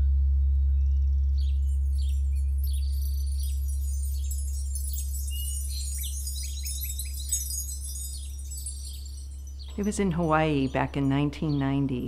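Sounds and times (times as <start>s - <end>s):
deep steady hum: 0.0s - 12.0s
birds chirping: 0.6s - 12.0s
wind chimes tinkling: 1.5s - 12.0s.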